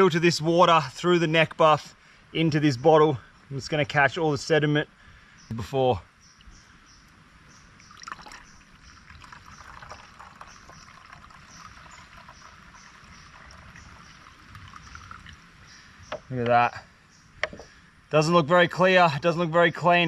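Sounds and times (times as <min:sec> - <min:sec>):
water trickling into bottle: 0:07.8 - 0:16.3.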